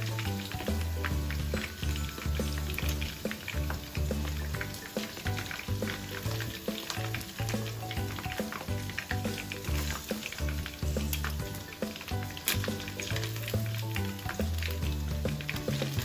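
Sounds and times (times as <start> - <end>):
background music with bass line: 0.0 - 16.0
food deep-frying in oil: 0.0 - 16.0.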